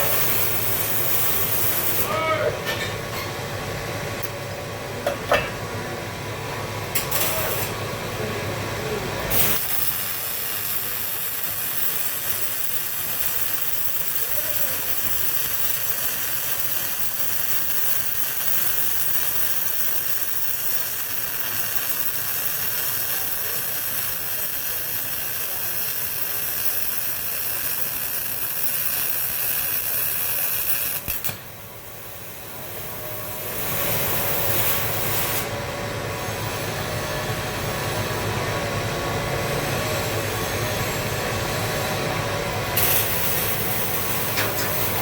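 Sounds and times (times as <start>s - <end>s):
welding arc crackling: 0.0s - 2.1s, 6.8s - 7.8s, 9.2s - 35.5s, 39.4s - 45.0s.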